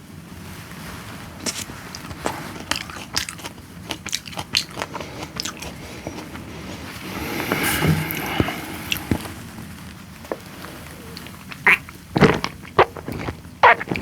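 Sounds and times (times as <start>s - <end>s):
person biting and chewing: 1.4s - 9.2s, 11.1s - 14.0s.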